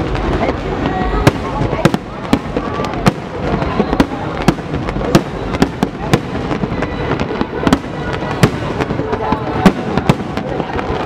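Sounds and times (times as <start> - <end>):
fireworks bursting with sharp bangs: 0.0 - 11.0.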